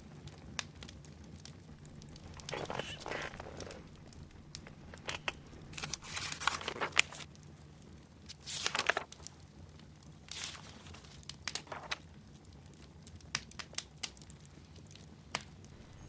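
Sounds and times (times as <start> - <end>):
book pages rustling: 1.7 - 7.3, 8.3 - 9.2, 10.3 - 12.0.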